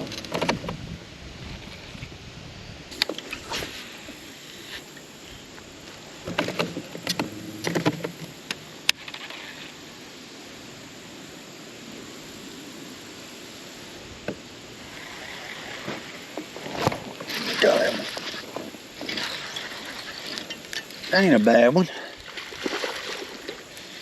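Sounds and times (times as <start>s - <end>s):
knocks and clatters in a boat: 0.0s - 2.1s, 6.2s - 9.7s, 15.7s - 21.3s
water noise: 0.0s - 24.0s
wind: 0.0s - 24.0s.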